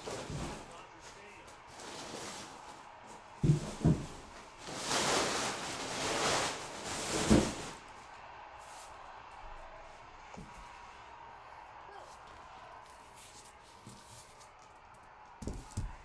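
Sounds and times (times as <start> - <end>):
rustling and scraping: 0.0 - 8.0.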